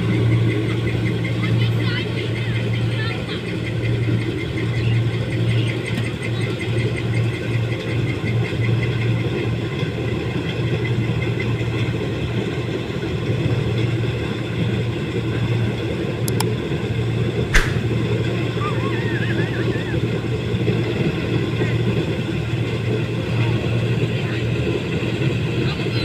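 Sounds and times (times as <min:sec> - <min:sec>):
short clicks: 0:17.6 - 0:17.9.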